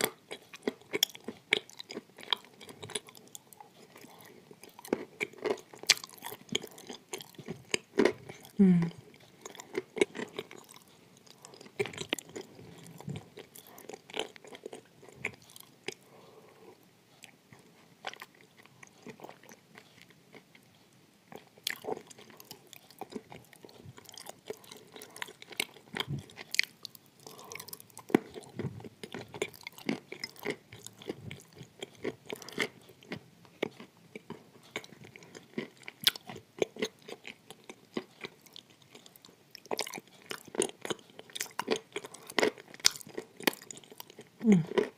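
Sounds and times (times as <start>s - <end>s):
wet chewing with crunches: 0.0s - 44.9s.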